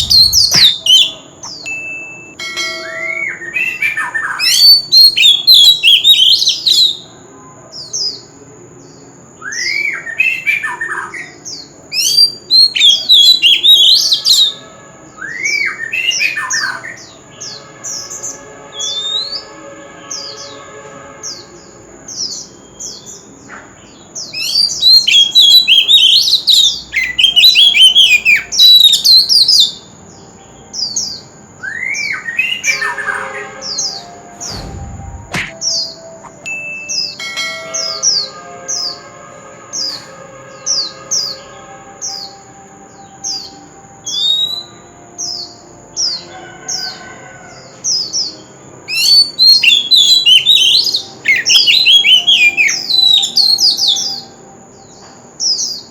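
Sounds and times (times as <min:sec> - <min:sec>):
magpie-robin singing: 0:00.0 - 0:07.1, 0:07.7 - 0:14.6, 0:21.6 - 0:39.0, 0:42.0 - 0:46.3, 0:47.9 - 0:55.9.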